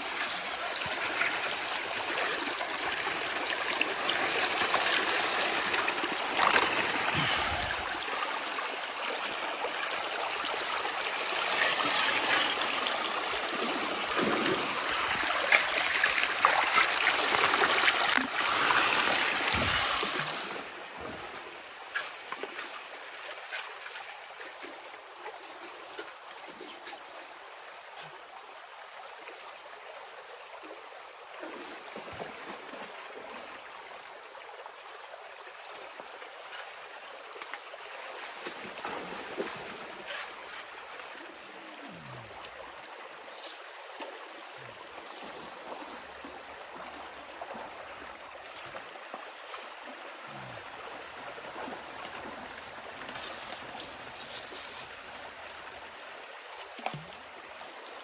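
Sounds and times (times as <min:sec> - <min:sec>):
river water rushing: 0:00.0 - 0:21.8.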